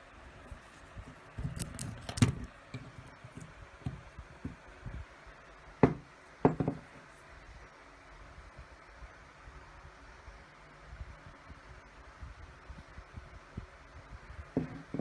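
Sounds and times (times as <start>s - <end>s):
fan motor parts clinking and knocking: 1.2s - 4.6s, 5.8s - 7.0s.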